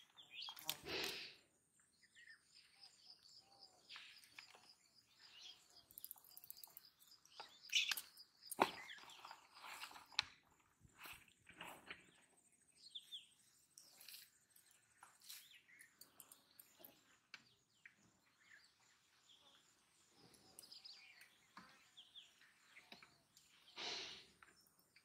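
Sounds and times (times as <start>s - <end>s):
short bird chirps: 2.1s - 9.4s.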